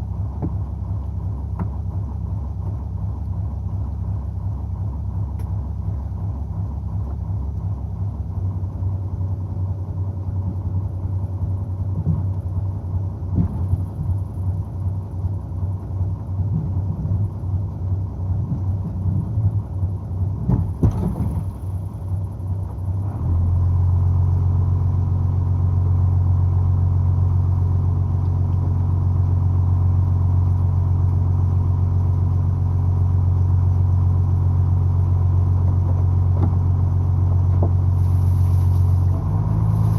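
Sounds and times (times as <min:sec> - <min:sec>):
boat engine throbbing hum: 0:00.0 - 0:39.9.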